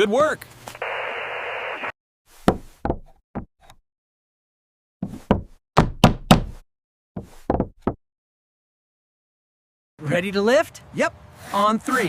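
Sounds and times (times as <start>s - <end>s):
sharp knocks: 5.0s - 6.6s.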